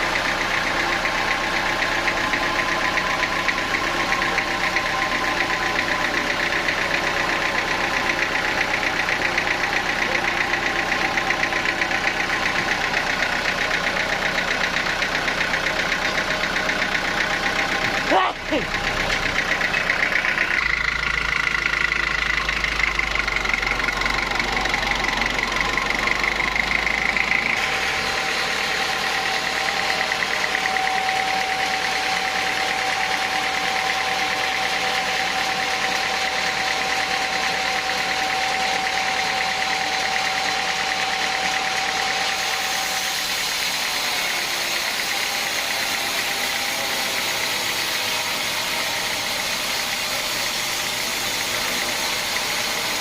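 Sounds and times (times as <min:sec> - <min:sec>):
sawmill machinery whining: 0:00.0 - 0:53.0.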